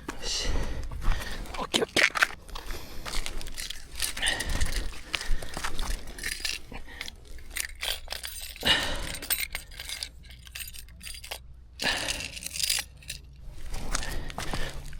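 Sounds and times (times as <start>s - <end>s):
light clicks and clinks: 3.1s - 14.2s.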